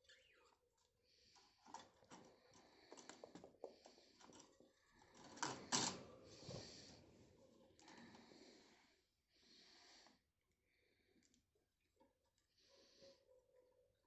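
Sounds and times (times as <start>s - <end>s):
budgies clicking and scratching: 0.0s - 8.2s.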